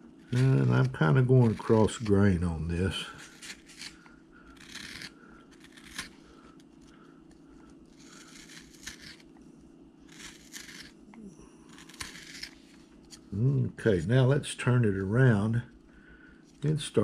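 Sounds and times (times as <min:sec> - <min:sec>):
gouge scraping wood: 0:00.2 - 0:04.0, 0:04.6 - 0:06.2, 0:07.9 - 0:09.3, 0:10.1 - 0:11.0, 0:11.7 - 0:13.2.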